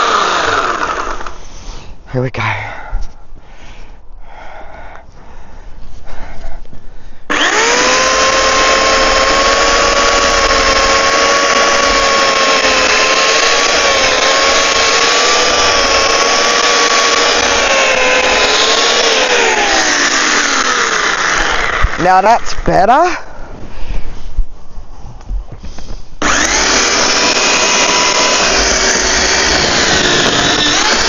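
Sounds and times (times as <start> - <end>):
chainsaw running: 0.0 - 1.5, 7.3 - 22.5, 26.2 - 31.0.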